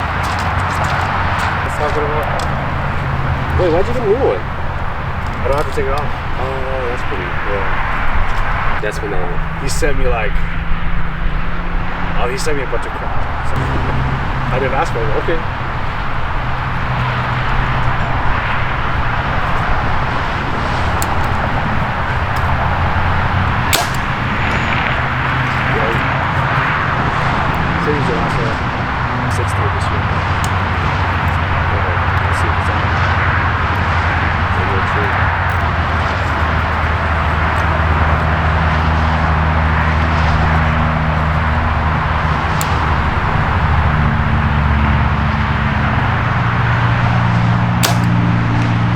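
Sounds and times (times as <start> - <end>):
engine drone: 0.0 - 48.9
sharp clicks: 20.9 - 26.7, 47.8 - 48.3.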